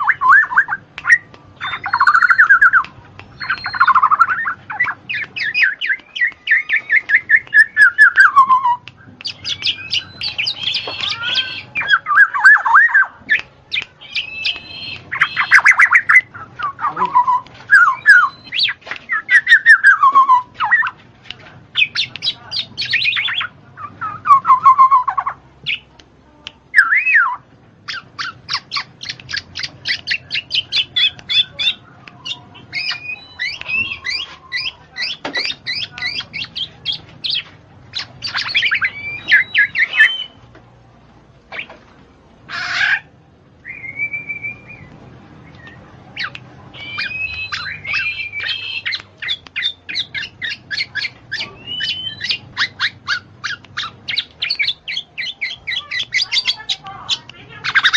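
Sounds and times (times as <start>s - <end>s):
bird singing: 0.0s - 21.0s, 21.7s - 25.9s, 26.7s - 40.4s, 42.5s - 57.9s.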